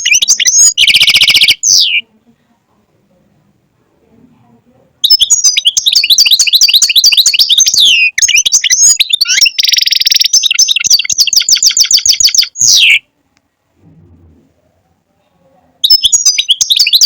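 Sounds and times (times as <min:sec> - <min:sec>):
goldfinch singing: 0:00.0 - 0:02.0, 0:05.0 - 0:13.0, 0:15.8 - 0:17.0.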